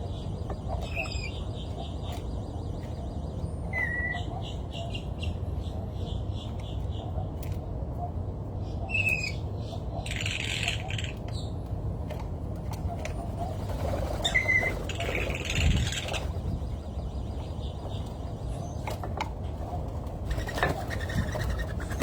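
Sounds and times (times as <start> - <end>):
small birds chirping: 0.0 - 11.7, 13.1 - 22.0.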